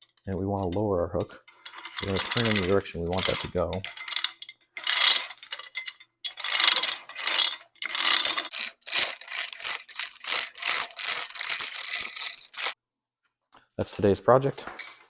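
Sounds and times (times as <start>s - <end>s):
gears clicking: 1.7s - 12.8s
steel chain rattling through block: 1.7s - 12.8s.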